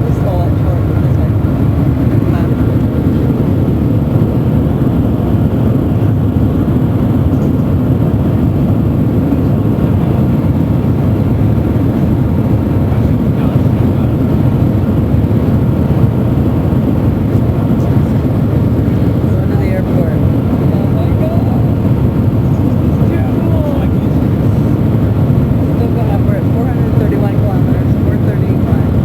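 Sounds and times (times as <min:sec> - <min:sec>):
train rumble inside cabin: 0:00.0 - 0:29.0.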